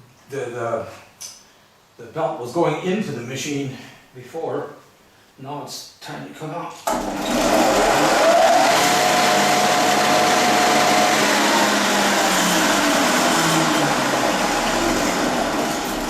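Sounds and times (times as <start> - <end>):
floor sander running: 6.9 - 16.0.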